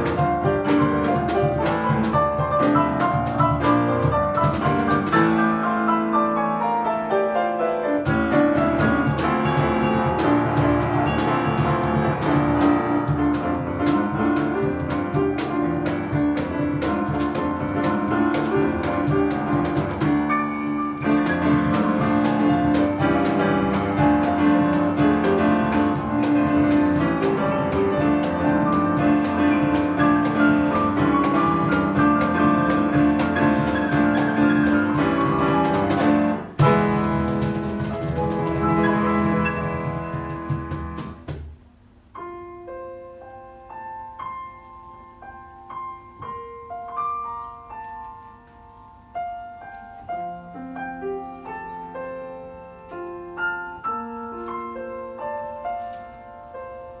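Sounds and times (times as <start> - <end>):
rhythmic drum hits: 0.0 - 5.6, 8.0 - 41.8
piano playing: 0.0 - 57.0.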